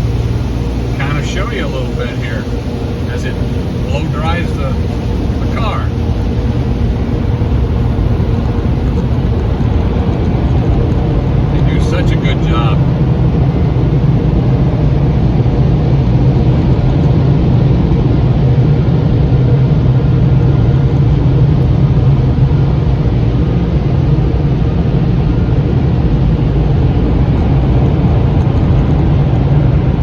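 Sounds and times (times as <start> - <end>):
air-dryer blowers rushing: 0.0 - 17.9.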